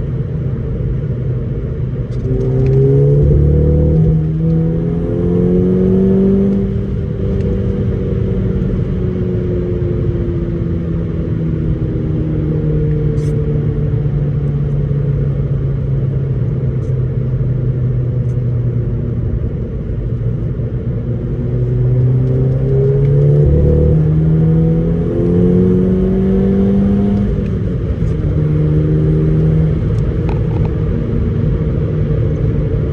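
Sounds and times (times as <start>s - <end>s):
misfiring car engine revving: 2.2s - 6.9s, 21.9s - 30.6s.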